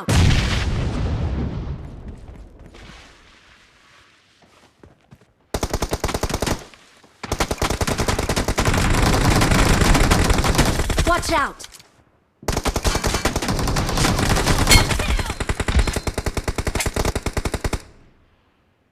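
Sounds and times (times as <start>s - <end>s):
video game automatic gunfire: 7.3s - 11.1s, 12.5s - 17.9s.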